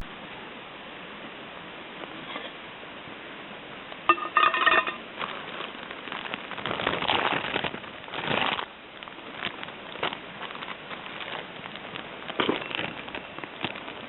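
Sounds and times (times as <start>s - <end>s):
pots and utensils clattering: 4.1s - 5.0s
metal cookpots clinking: 4.1s - 5.1s.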